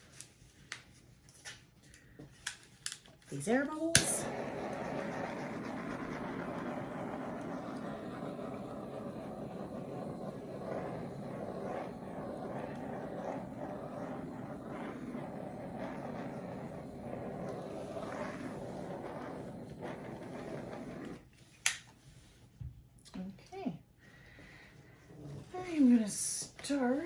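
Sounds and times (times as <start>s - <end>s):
heat tool running: 3.8s - 21.2s.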